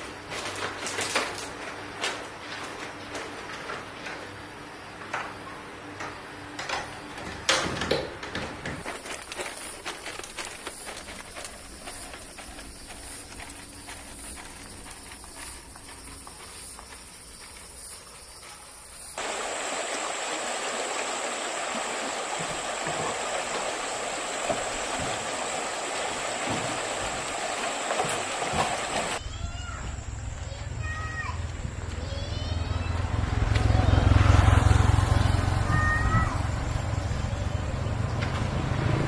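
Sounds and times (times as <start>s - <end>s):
rushing water: 19.2s - 29.2s.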